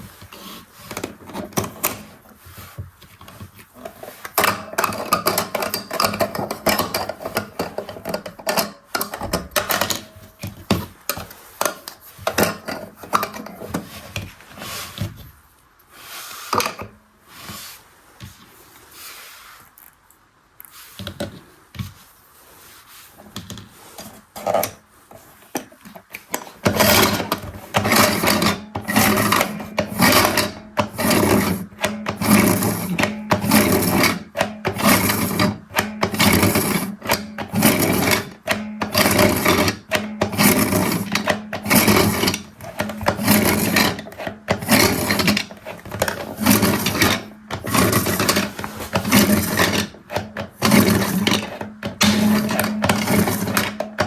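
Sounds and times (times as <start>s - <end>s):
rattling churn: 26.4s - 54.0s
toy washing machine motor hum: 26.4s - 54.0s.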